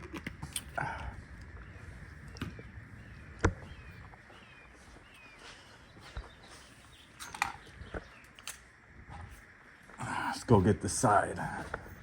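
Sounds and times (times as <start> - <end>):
small bird chirping: 1.4 - 9.4.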